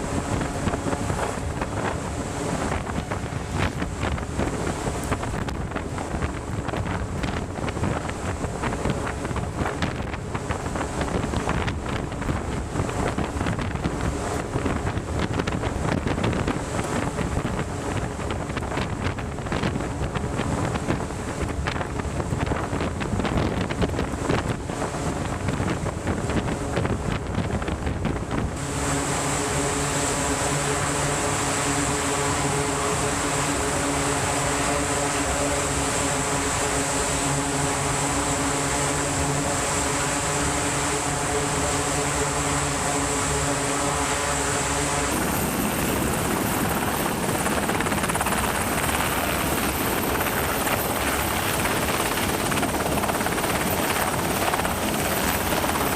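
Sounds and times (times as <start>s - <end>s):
wind buffeting microphone: 0.0s - 55.9s
rushing water: 28.5s - 55.9s.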